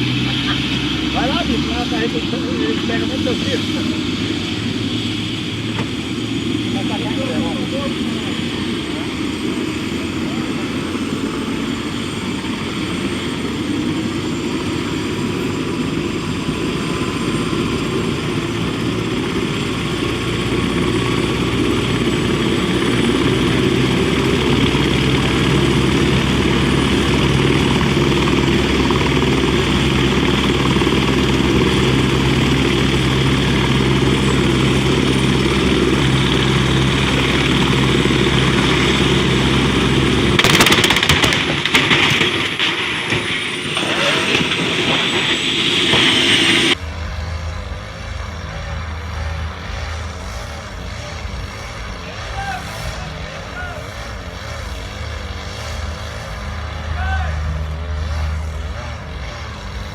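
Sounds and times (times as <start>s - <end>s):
heavy vehicle engine running: 0.0s - 59.9s
harsh noise burst: 38.4s - 46.8s.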